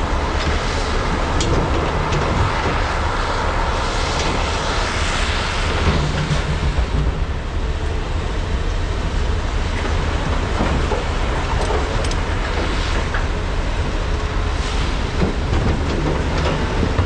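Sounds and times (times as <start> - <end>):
excavator diesel engines running: 0.0 - 17.0.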